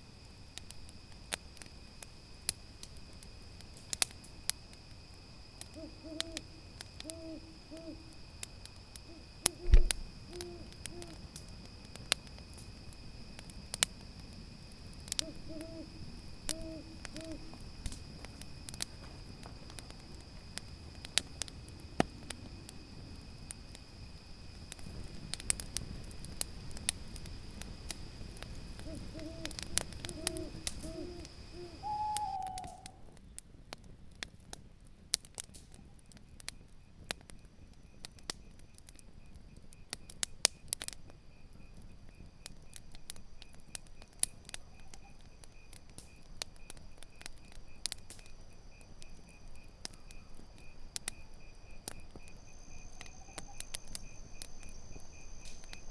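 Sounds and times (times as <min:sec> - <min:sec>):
campfire crackling and popping: 0:00.0 - 0:55.9
crickets trilling: 0:00.0 - 0:55.9
owl hooting: 0:05.6 - 0:08.3, 0:09.0 - 0:11.3, 0:15.1 - 0:17.6, 0:28.7 - 0:33.1.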